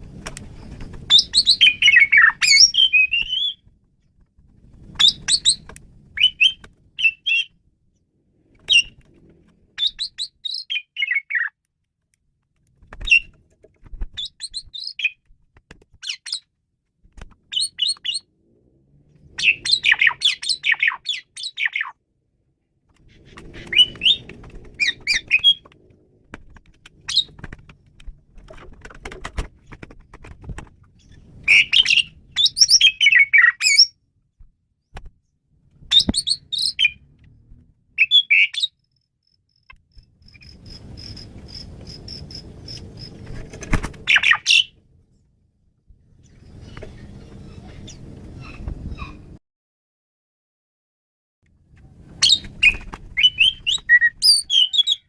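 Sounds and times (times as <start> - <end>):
starling singing: 1.1 - 3.6, 19.3 - 22.0, 23.2 - 25.7, 31.0 - 34.0, 44.0 - 44.8, 52.2 - 55.0.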